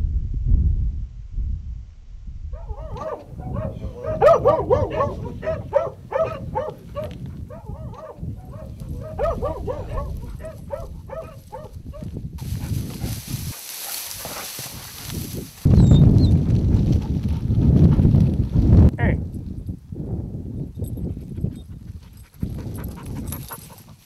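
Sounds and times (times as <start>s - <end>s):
dogs barking: 2.6s - 14.9s.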